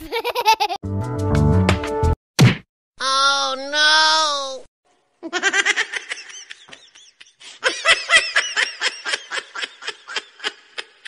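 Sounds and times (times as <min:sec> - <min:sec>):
group laughter: 0:00.0 - 0:00.8, 0:05.3 - 0:11.0.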